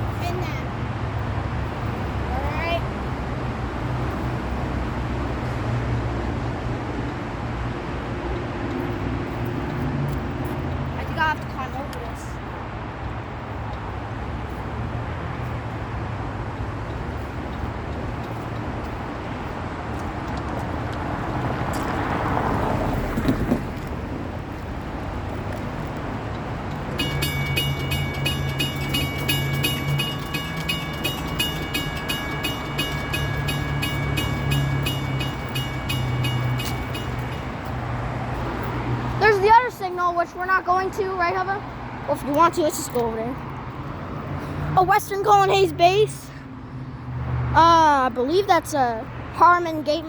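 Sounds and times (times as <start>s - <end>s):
train rumble: 16.9s - 41.6s
crossing bell ringing: 26.5s - 41.6s.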